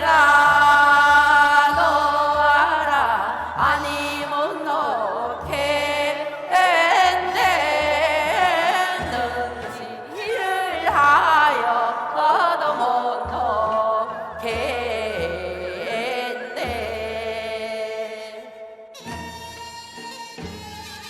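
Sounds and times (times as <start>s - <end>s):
person singing folk song: 0.0s - 18.7s
instrumental accompaniment: 18.6s - 21.0s.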